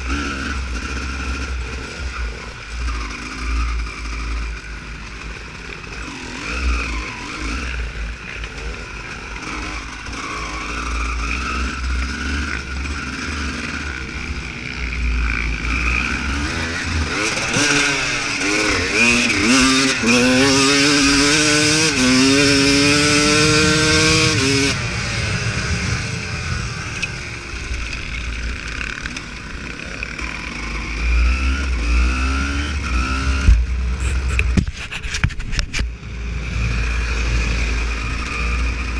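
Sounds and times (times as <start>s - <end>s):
dirt bike engine accelerating: 0.0s - 38.9s
low rumble of wind: 22.5s - 31.8s.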